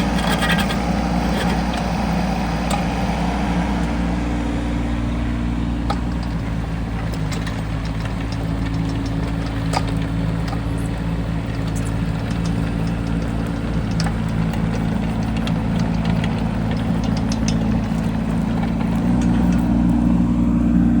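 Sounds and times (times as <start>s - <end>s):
small diesel engine running: 0.0s - 21.0s.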